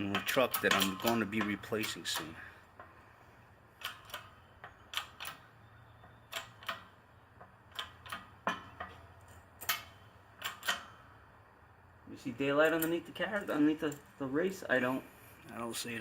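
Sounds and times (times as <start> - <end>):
sharp metallic clicks and taps: 0.0 - 3.0, 3.7 - 11.0.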